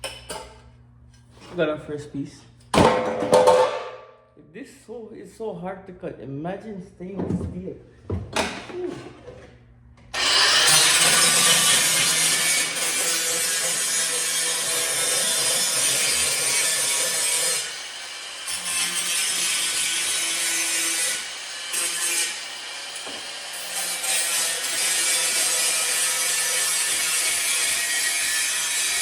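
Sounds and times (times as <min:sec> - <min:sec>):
power tool cutting metal: 0:10.1 - 0:29.0.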